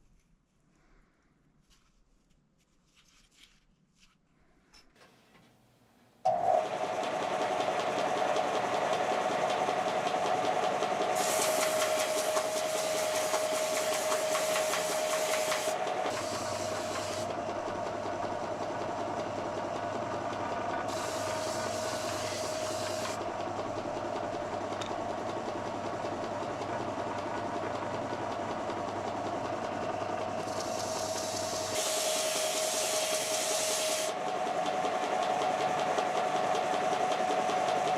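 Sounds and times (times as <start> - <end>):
harsh grinding noise: 11.1 - 17.3, 20.9 - 23.2
power tool motor whining: 11.1 - 17.3, 20.8 - 23.2, 30.5 - 34.1.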